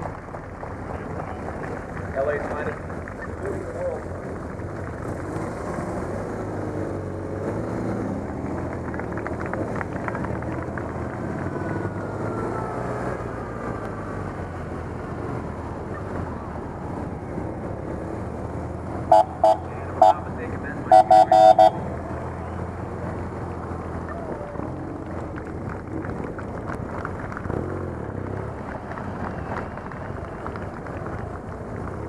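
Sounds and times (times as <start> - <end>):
motorcycle engines rumbling: 0.0 - 32.0
street noise: 0.0 - 32.0
horn toots: 19.1 - 21.8.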